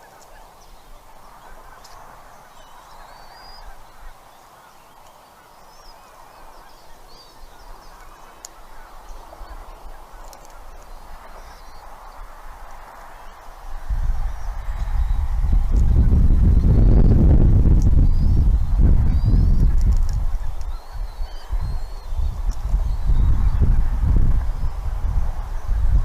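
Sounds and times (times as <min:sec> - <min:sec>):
whistled songbird phrases: 0:00.0 - 0:12.3, 0:14.3 - 0:17.1, 0:17.8 - 0:19.8, 0:20.4 - 0:23.7
many small bird calls: 0:00.0 - 0:26.0.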